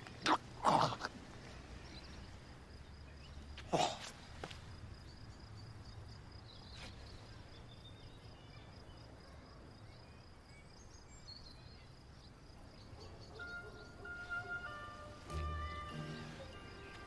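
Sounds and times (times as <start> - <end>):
high insect trill: 12.5 - 17.0
soft music: 13.0 - 17.0.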